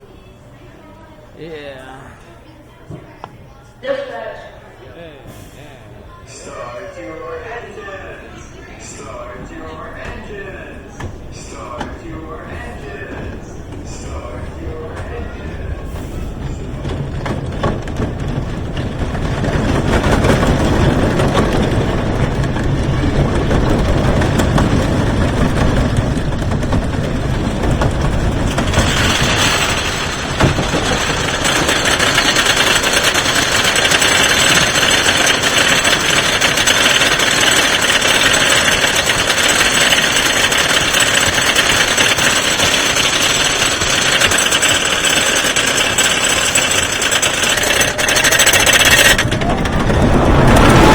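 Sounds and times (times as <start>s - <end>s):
roller coaster train rumbling: 0.0s - 50.9s
lift hill chain clatter: 6.5s - 50.9s.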